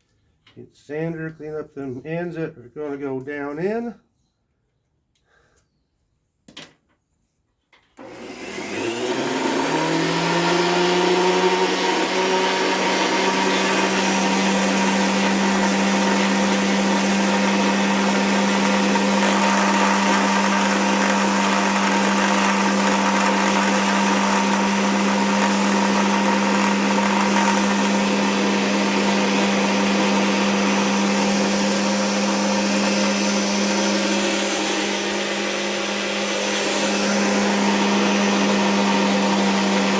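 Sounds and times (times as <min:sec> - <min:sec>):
electric sander motor humming: 0:08.0 - 0:39.9.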